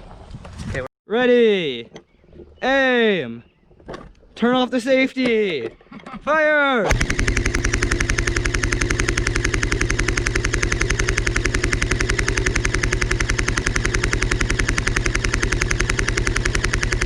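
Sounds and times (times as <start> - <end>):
full-auto gunfire: 6.9 - 17.0.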